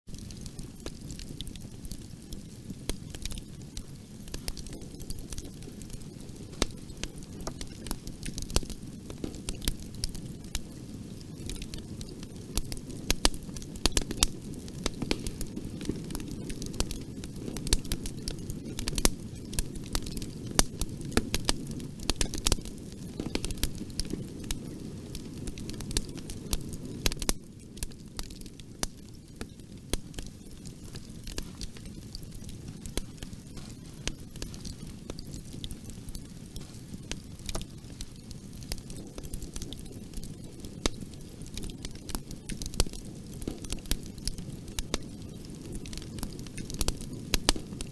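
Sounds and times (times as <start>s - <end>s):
fire popping and snapping: 0.1s - 47.9s
wood fire crackling: 0.1s - 47.9s
hiss of burning: 28.8s - 47.9s.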